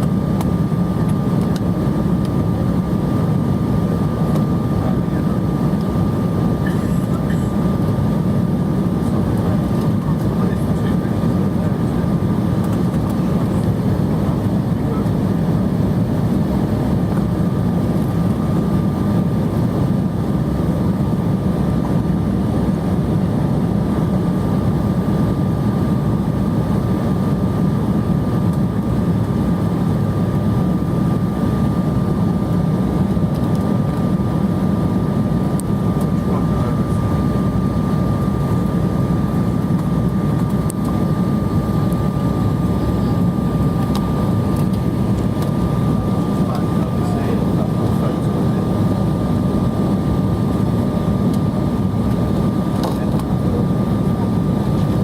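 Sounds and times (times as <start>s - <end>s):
jet engine and airflow roar: 0.0s - 55.0s
thin steady whine: 23.8s - 55.0s.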